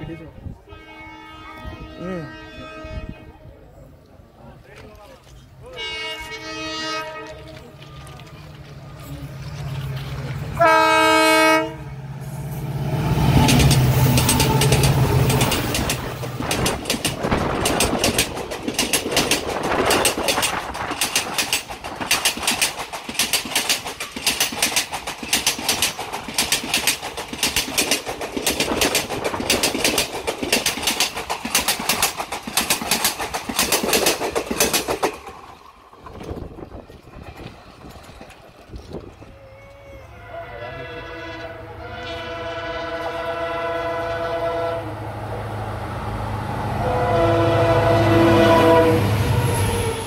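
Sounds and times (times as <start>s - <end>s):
rolling train rumble: 5.3s - 50.0s
train wheels clattering over joints: 13.4s - 39.4s.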